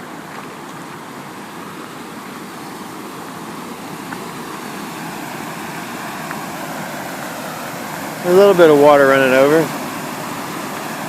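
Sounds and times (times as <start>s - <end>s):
creek water rushing over falls: 0.0s - 11.0s.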